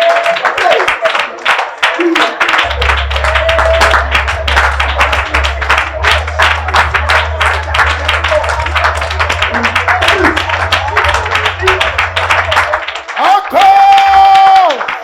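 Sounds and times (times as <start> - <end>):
congregation praying aloud: 0.0 - 15.0
hand clapping: 0.0 - 15.0
low sustained musical note: 2.6 - 13.0.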